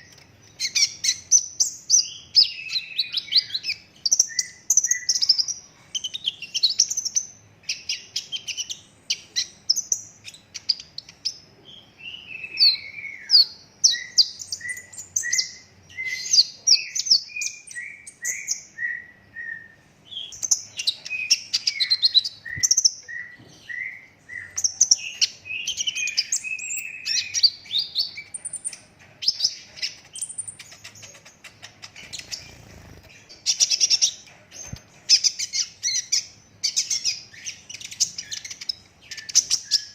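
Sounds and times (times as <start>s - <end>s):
sunbird chirping and trilling: 0.0s - 39.9s.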